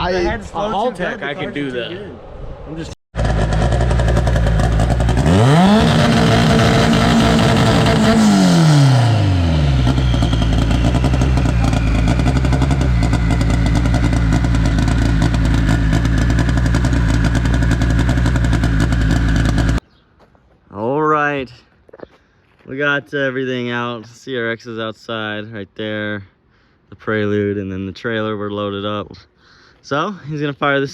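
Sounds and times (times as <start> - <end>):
car engine idling and revving: 3.2 - 19.8.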